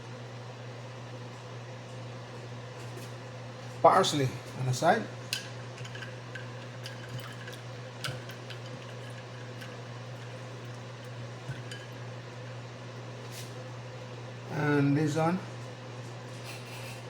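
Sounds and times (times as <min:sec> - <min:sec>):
steady low hum: 0:00.0 - 0:17.0
utensils clicking on dishware: 0:05.3 - 0:10.5.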